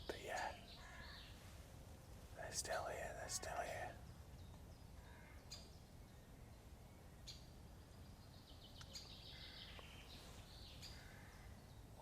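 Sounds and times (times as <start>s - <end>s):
faint high-pitched bird calls: 0.0s - 1.6s, 2.4s - 12.0s.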